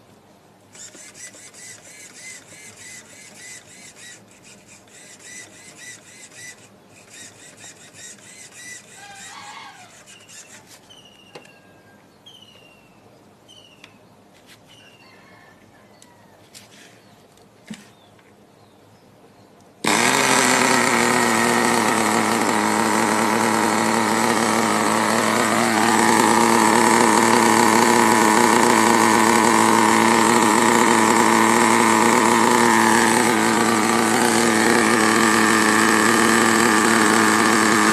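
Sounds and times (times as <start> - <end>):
birds twittering: 8.9 - 16.3
bird whistling: 9.0 - 14.0.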